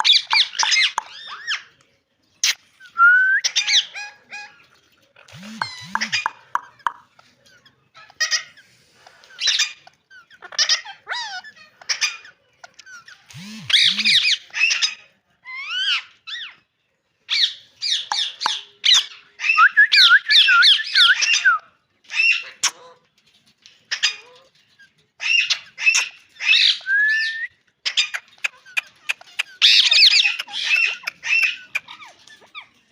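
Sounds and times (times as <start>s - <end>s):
parakeet squawking and chirping: 0.0s - 1.8s, 2.4s - 16.6s, 17.3s - 21.4s, 22.1s - 23.0s, 23.9s - 26.9s, 27.8s - 32.9s
parakeet warbling chatter: 3.5s - 8.7s, 9.4s - 15.0s, 27.9s - 32.8s.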